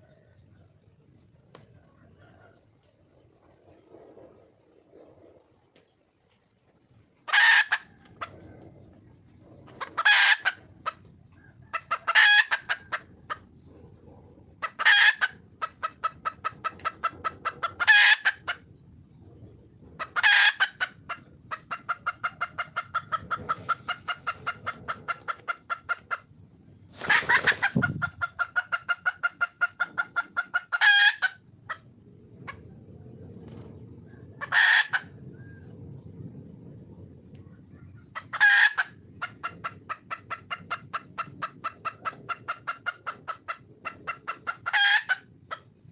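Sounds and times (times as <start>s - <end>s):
hen clucking rapidly: 7.2s - 18.7s, 19.4s - 26.4s, 27.0s - 32.8s, 37.9s - 45.8s.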